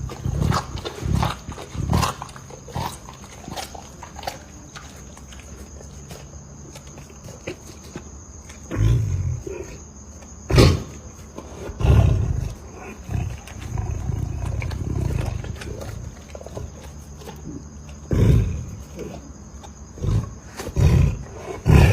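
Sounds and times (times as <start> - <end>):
big cat growling and roaring: 0.0 - 4.4, 8.6 - 9.8, 10.5 - 21.9.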